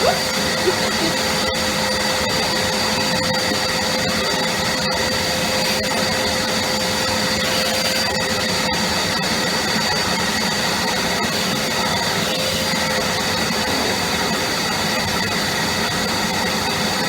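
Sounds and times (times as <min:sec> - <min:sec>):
vacuum cleaner whining: 0:00.0 - 0:17.0.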